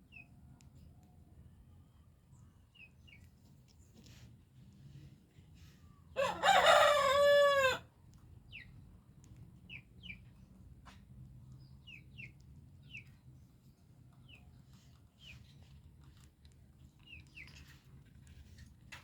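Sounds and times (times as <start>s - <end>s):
rooster crowing: 6.2s - 7.8s.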